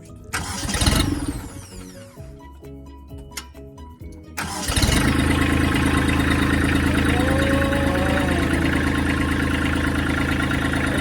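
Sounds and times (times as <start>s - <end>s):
diesel engine running: 0.3s - 2.0s, 4.4s - 11.0s
starter cranking: 0.3s - 2.2s, 4.4s - 11.0s.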